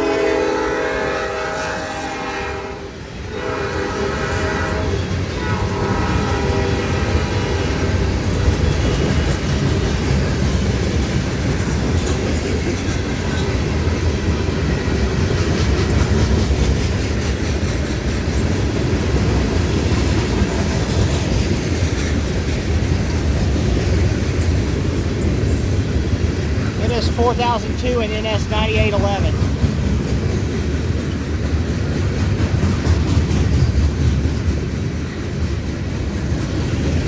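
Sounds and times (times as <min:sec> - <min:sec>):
train horn blast: 0:00.0 - 0:08.2
train rumbling past: 0:00.0 - 0:37.0.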